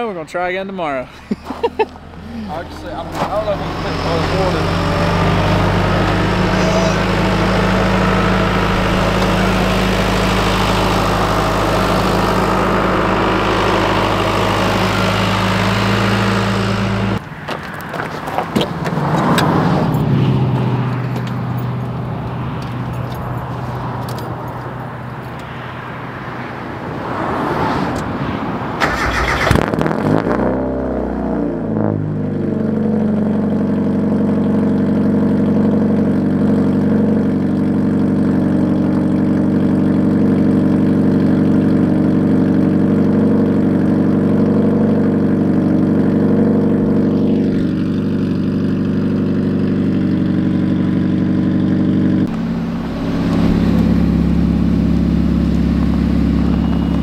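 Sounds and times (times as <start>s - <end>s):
car engine idling: 0.0s - 19.2s, 32.2s - 57.0s
car engine cranking: 1.3s - 25.3s, 28.8s - 30.5s, 44.1s - 57.0s
engine revving: 1.8s - 17.2s, 28.8s - 57.0s.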